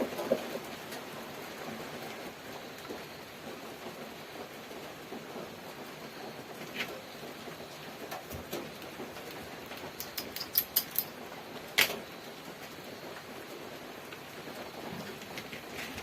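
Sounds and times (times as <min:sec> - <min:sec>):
steady hiss: 0:00.0 - 0:16.0
small hard objects clicking: 0:09.2 - 0:11.2.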